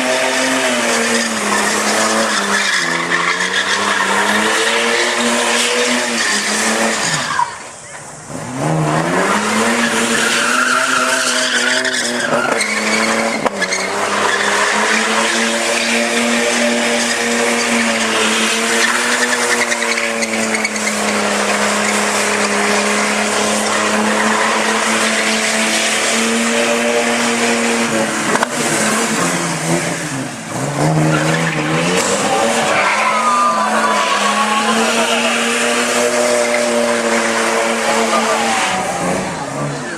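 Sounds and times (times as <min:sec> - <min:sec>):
car engine at high revs: 0:00.0 - 0:39.9
tyres squealing: 0:30.9 - 0:39.1.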